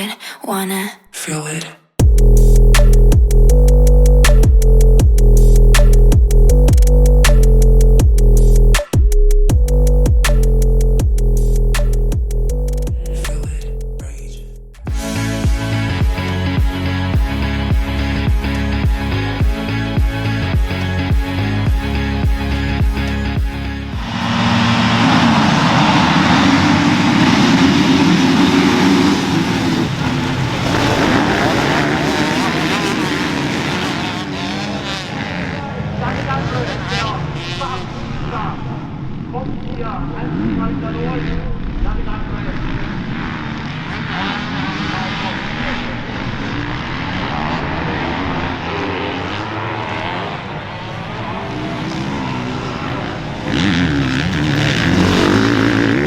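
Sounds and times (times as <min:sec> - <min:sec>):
motocross engines racing: 0:24.0 - 0:56.0.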